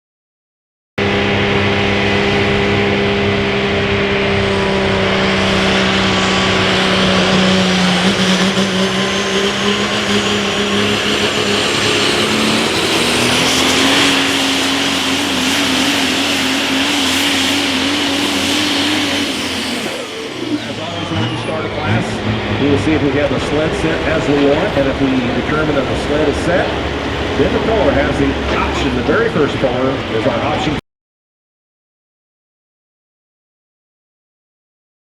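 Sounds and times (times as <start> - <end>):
diesel truck engine at full throttle: 1.0 - 30.8
high turbo whistle: 5.0 - 22.1.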